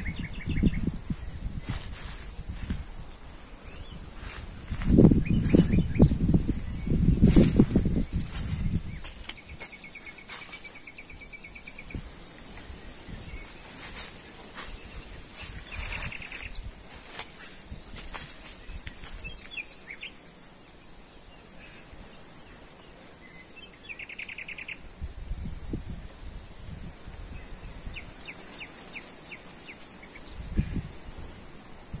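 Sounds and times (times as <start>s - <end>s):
wind rumble on microphone: 0.0s - 19.9s, 24.8s - 28.4s, 30.2s - 32.0s
songbirds trilling and chirping: 0.0s - 25.8s, 26.4s - 31.8s
steady high-pitched hiss: 0.0s - 32.0s.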